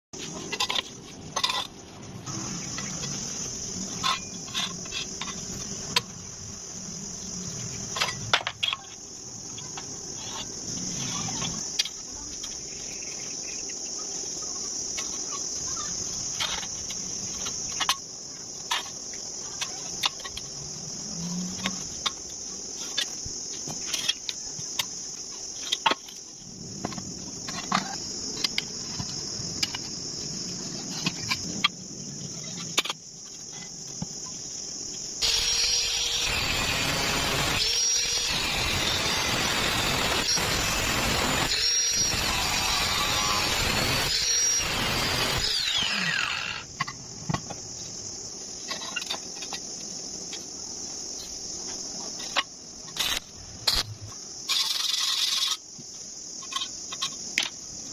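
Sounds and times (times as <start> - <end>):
high-pitched insect chorus: 0.2 - 57.9.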